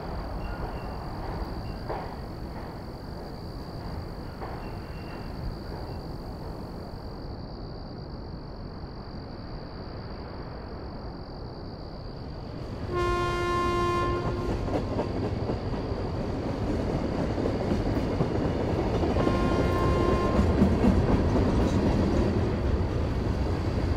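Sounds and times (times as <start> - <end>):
train wheels clattering: 0.0 - 7.0, 13.6 - 23.9
train horn blast: 12.9 - 14.8, 19.1 - 20.6.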